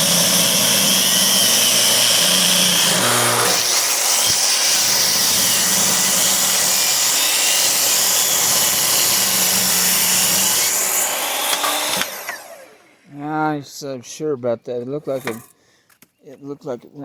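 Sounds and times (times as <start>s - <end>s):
table saw cutting wood: 0.0s - 13.0s
table saw motor hum: 0.0s - 13.0s.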